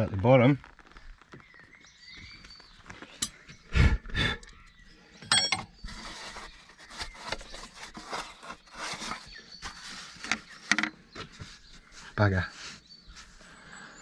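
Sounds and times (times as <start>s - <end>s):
metallic clink: 5.2s - 5.7s
metal scraping against metal: 5.2s - 9.2s.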